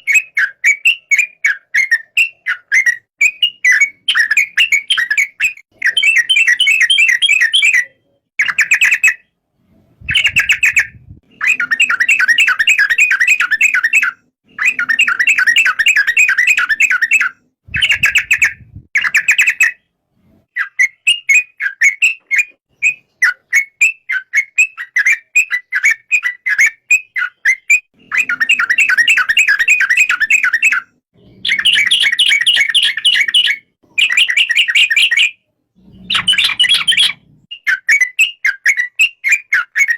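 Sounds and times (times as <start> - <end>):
bird singing chattering phrases: 20.6 - 39.9.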